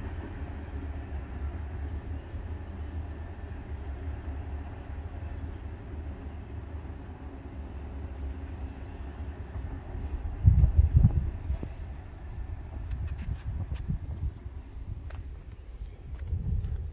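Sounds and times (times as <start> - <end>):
distant freight train rumble: 0.0 - 16.9.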